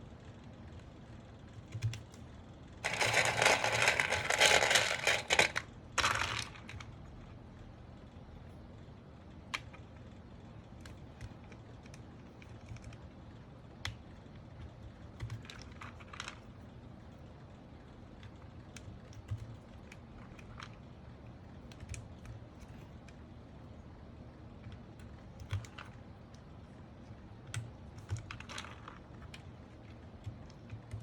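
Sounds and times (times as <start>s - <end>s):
faint low hum: 0.0s - 31.0s
plastic keyboard parts clicking: 2.8s - 6.9s, 14.6s - 16.4s, 21.6s - 23.2s, 24.6s - 26.4s, 27.4s - 31.0s.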